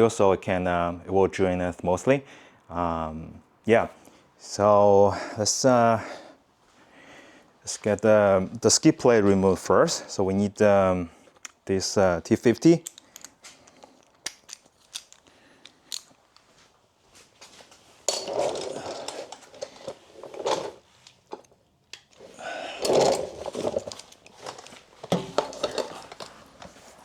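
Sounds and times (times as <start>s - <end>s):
tools clicking and clinking: 12.3s - 16.6s, 18.0s - 26.8s
tools rustling and clattering: 12.3s - 27.0s.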